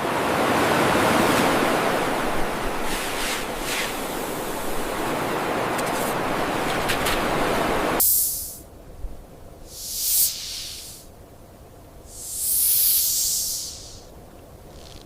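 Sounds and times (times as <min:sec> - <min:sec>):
snake hissing: 0:08.0 - 0:08.6, 0:09.6 - 0:11.1, 0:12.1 - 0:14.1.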